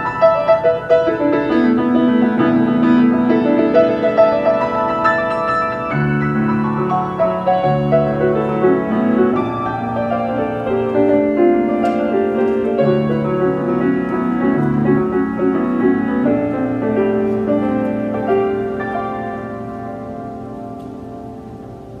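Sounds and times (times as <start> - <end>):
solo jazz piano: 0.0 - 22.0.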